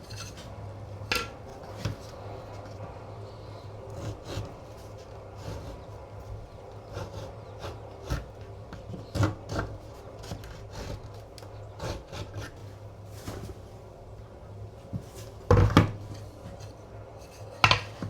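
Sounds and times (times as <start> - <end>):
hand tool scraping wood: 0.0 - 2.8, 3.4 - 13.5
steady low hum: 0.0 - 18.0.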